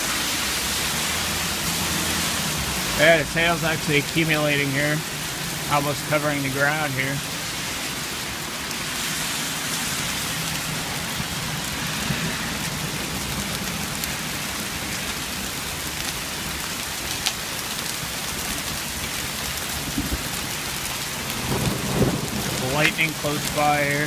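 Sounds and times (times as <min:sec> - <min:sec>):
hail and rain hissing: 0:00.0 - 0:24.0
hailstones clicking: 0:10.5 - 0:24.0.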